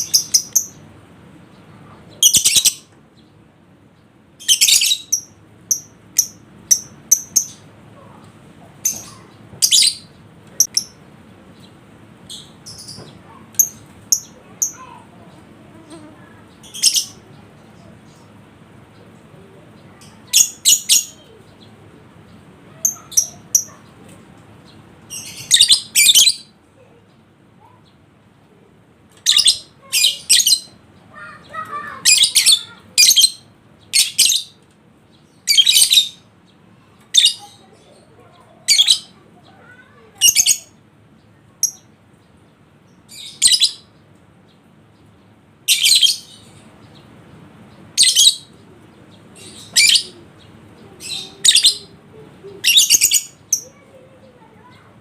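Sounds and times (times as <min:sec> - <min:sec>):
lovebird shrill chirping: 0:02.2 - 0:02.8, 0:04.4 - 0:07.6, 0:15.9 - 0:17.2, 0:45.7 - 0:46.4, 0:51.1 - 0:51.9, 0:52.6 - 0:53.8.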